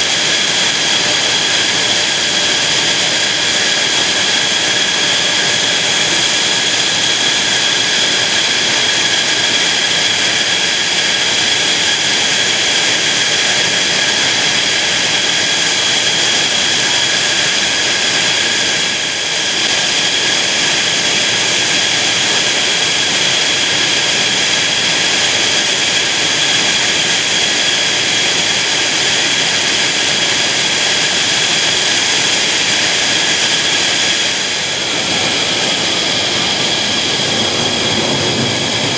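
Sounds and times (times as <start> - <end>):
jet engine running: 0.0 - 38.9.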